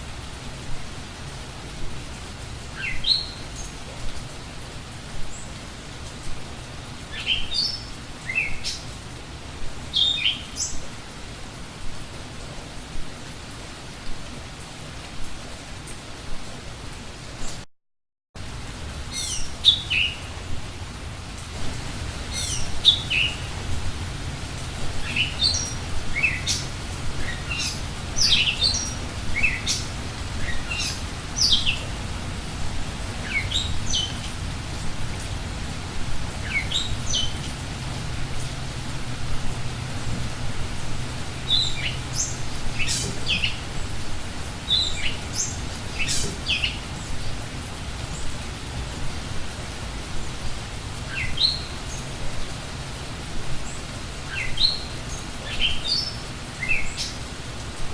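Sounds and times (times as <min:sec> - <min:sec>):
steady background hiss: 0:00.0 - 0:17.6, 0:18.4 - 0:57.9
forest bird calling: 0:02.7 - 0:03.8, 0:07.1 - 0:08.9, 0:09.9 - 0:10.9, 0:19.1 - 0:20.4, 0:22.1 - 0:23.7, 0:25.0 - 0:32.0, 0:41.4 - 0:44.0, 0:44.7 - 0:47.2.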